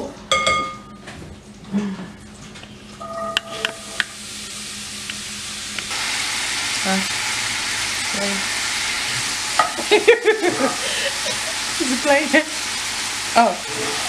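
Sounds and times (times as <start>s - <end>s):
apples sizzling in butter: 3.5s - 14.0s.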